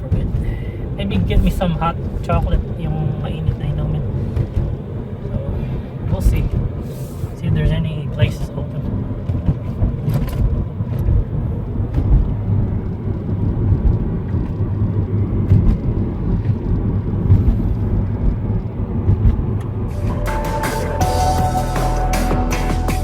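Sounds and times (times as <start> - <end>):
car engine and tyre rumble: 0.0 - 22.1
music: 19.9 - 23.0.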